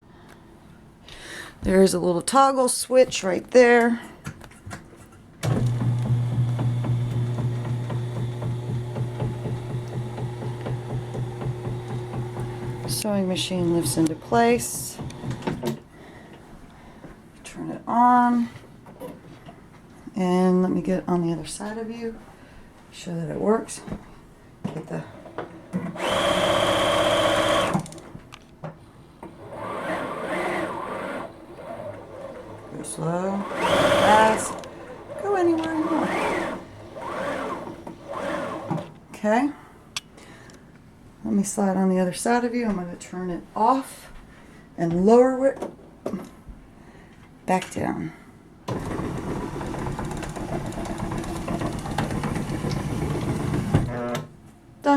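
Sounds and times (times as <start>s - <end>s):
electric motor humming: 5.5s - 15.6s, 25.9s - 27.9s, 29.4s - 38.9s
sewing machine running: 5.5s - 15.6s, 25.9s - 28.0s, 29.4s - 38.9s, 48.7s - 53.8s.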